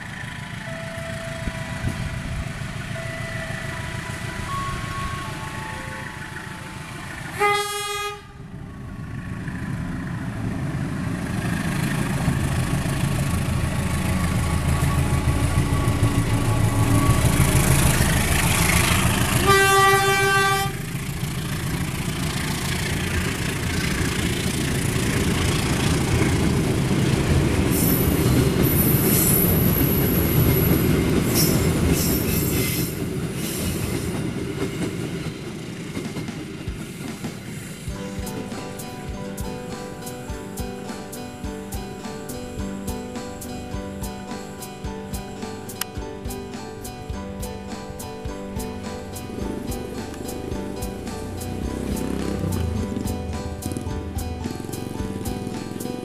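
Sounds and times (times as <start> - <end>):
wheels squealing on rails: 0.0 - 8.2, 8.8 - 45.8, 46.7 - 56.0
diesel train engine and wheels rumbling: 0.0 - 56.0
train horn blast: 0.5 - 8.5, 14.3 - 21.0.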